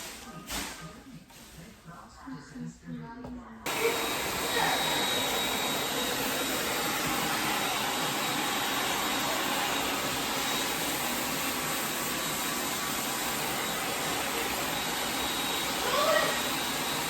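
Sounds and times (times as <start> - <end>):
hair dryer running: 3.7 - 17.0.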